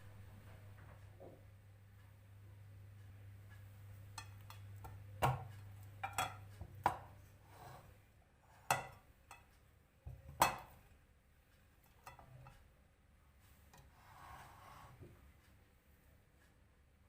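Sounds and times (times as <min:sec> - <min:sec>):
faint low hum: 0:00.0 - 0:17.0
cookware knocking and clinking: 0:04.2 - 0:07.1, 0:08.6 - 0:09.5, 0:10.1 - 0:10.8, 0:11.9 - 0:12.5.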